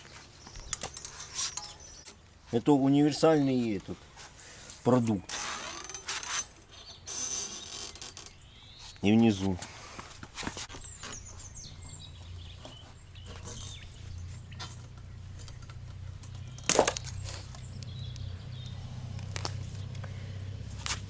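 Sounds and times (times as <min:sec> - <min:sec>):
steady low hum: 0:09.7 - 0:21.0.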